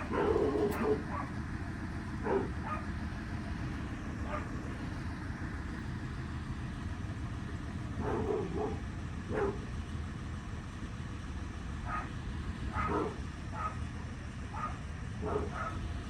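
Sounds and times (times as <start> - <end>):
dog barking: 0.0 - 1.4, 2.2 - 2.9, 4.2 - 4.6, 8.0 - 9.7, 11.8 - 13.8, 14.5 - 15.9
garbage truck engine rumbling: 0.0 - 16.0.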